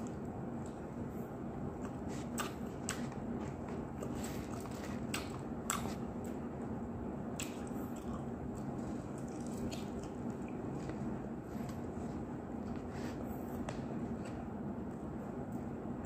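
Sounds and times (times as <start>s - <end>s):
steady low hum: 0.0s - 16.0s
chewing crispy fried chicken: 1.7s - 6.4s, 7.3s - 11.8s.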